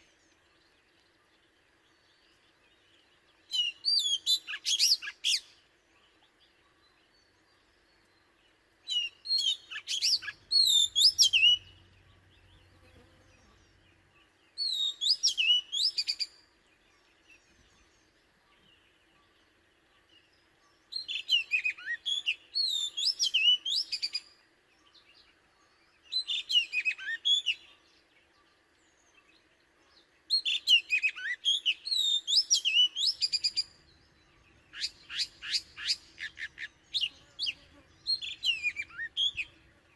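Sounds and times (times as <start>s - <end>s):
bird singing whistled phrases: 3.5s - 5.5s, 8.9s - 11.8s, 14.6s - 16.4s, 21.0s - 24.2s, 26.1s - 27.7s, 30.3s - 33.8s, 34.7s - 37.1s, 38.1s - 39.5s.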